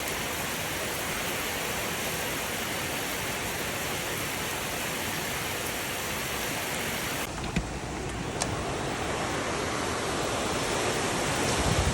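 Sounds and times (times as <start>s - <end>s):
steady rain falling: 0.0s - 11.9s.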